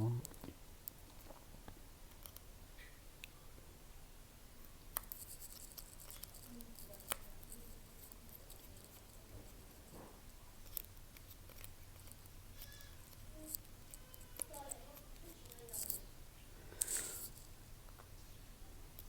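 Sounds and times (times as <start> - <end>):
light scratching: 5.0 - 16.1, 16.8 - 17.6.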